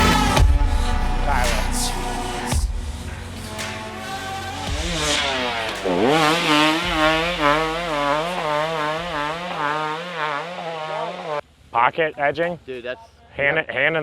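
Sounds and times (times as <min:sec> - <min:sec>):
dirt bike engine revving: 0:00.0 - 0:11.4.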